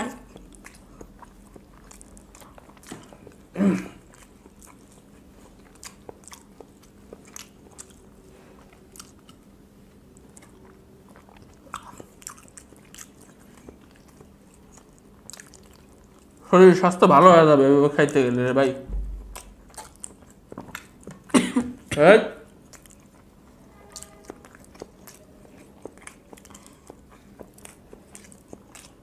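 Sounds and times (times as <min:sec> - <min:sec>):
wet chewing with clicks: 0:00.1 - 0:16.5, 0:17.9 - 0:18.4, 0:19.0 - 0:21.4, 0:22.4 - 0:29.0
person grunting: 0:03.6 - 0:04.0.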